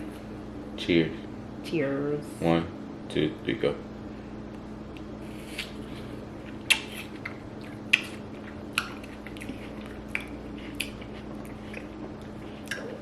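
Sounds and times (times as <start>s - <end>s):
steady low hum: 0.0s - 13.0s
chewing crunchy food: 5.0s - 13.0s.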